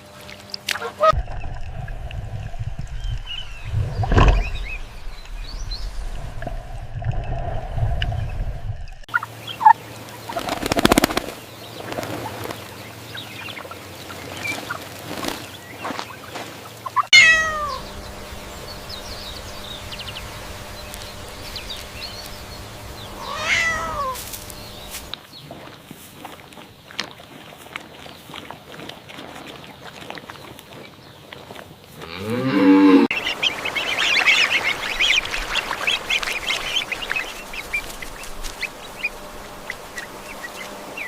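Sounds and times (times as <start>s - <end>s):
low steady hum: 0.0s - 25.2s, 31.9s - 41.0s
cat meowing: 17.1s - 17.8s, 23.2s - 24.2s.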